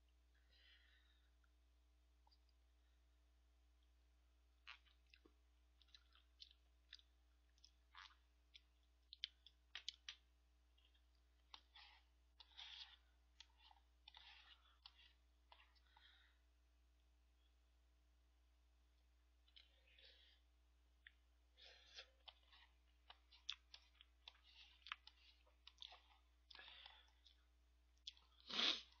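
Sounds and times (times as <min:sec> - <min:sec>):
mouth clicks and chewing smacks: 0:04.6 - 0:16.1, 0:21.9 - 0:29.0.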